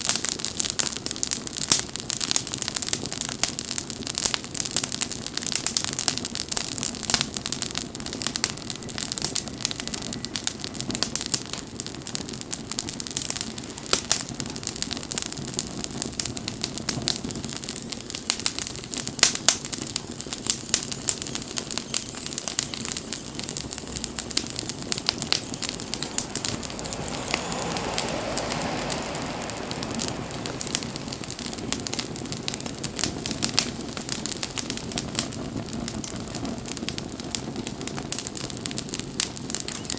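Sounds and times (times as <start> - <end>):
campfire crackling and popping: 0.0 - 39.9
low rushing of flames: 0.0 - 39.9
broad rushing noise: 20.6 - 34.0.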